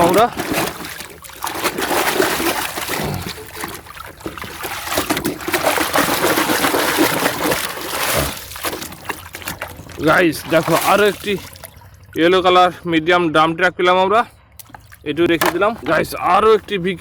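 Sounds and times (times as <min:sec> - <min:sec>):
water splashing and trickling: 0:00.0 - 0:12.6, 0:14.6 - 0:17.0.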